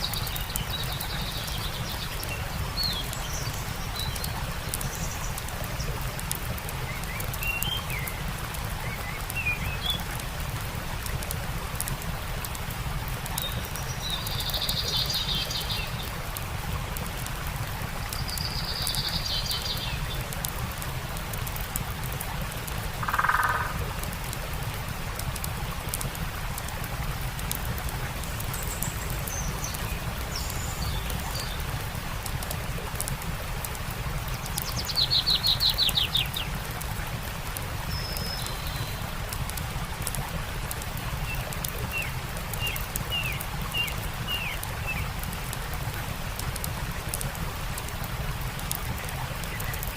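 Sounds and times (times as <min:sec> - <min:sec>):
songbirds chirping: 0:00.0 - 0:40.1, 0:40.9 - 0:49.9
campfire crackling: 0:00.0 - 0:49.9
stream running: 0:00.0 - 0:49.9
low-pitched bird call: 0:23.0 - 0:23.8.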